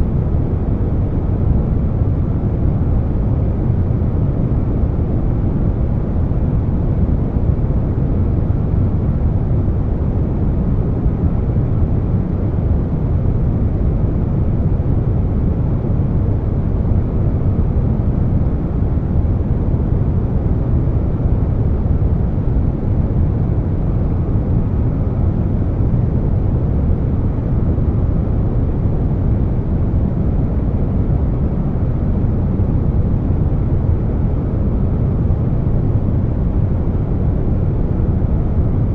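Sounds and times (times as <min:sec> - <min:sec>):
air conditioner noise: 0:00.0 - 0:38.9.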